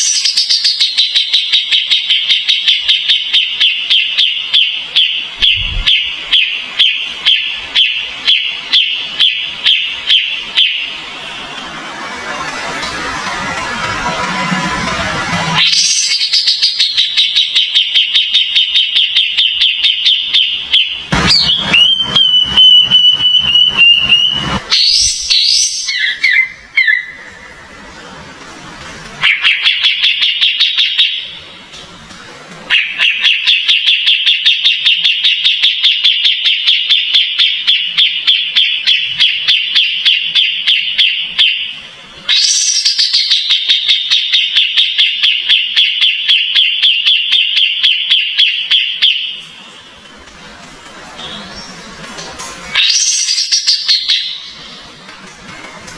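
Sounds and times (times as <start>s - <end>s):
bird chirping rapidly: 0.0s - 11.2s, 15.6s - 27.4s, 29.2s - 31.3s, 32.7s - 49.4s, 52.8s - 54.6s
buzzy bird call: 32.7s - 49.2s.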